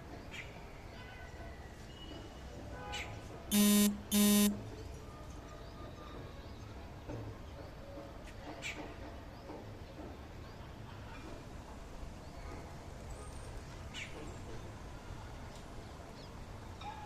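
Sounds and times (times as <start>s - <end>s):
short loud buzzes: 3.5s - 4.6s.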